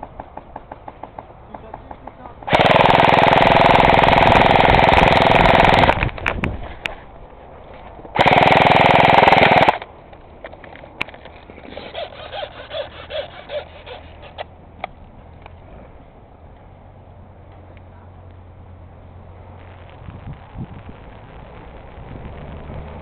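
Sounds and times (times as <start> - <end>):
airsoft gun firing full auto: 2.5 - 6.1, 8.2 - 9.9.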